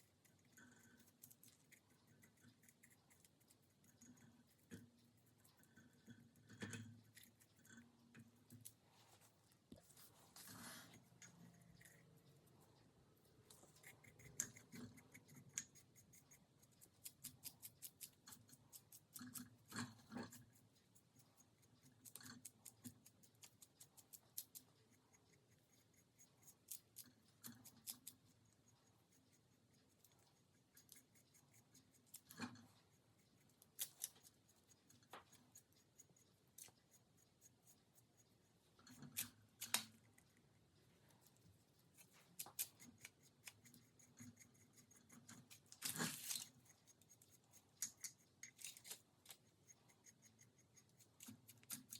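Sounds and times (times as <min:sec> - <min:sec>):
crisp snips and clicks: 0:33.6 - 0:35.7, 0:38.9 - 0:40.3, 0:41.9 - 0:43.8, 0:51.1 - 0:51.9.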